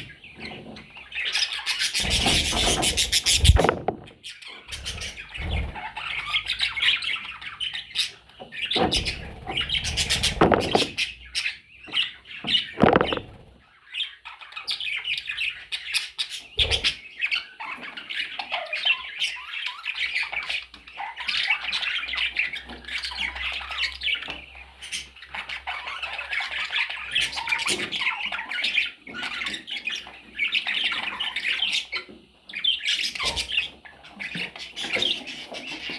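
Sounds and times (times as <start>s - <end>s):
parrots chattering and squawking: 0.0s - 35.9s
loud knocks: 3.4s - 4.2s, 10.2s - 11.0s, 12.8s - 13.4s.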